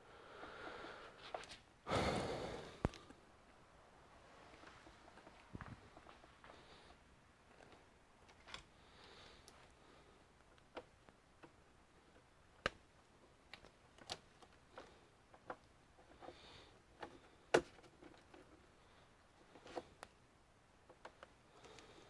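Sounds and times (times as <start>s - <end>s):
clicks and taps of computer parts: 17.0s - 18.5s.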